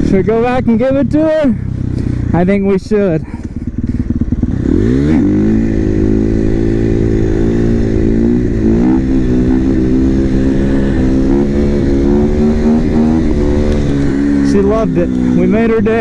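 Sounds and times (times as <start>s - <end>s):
motorcycle engine revving high: 0.0s - 16.0s.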